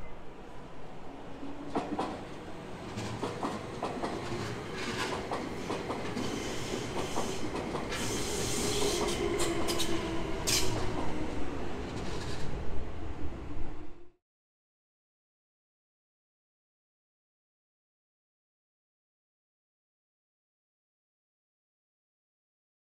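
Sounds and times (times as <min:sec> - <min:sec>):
wheels clacking over rail joints: 0:01.7 - 0:08.0.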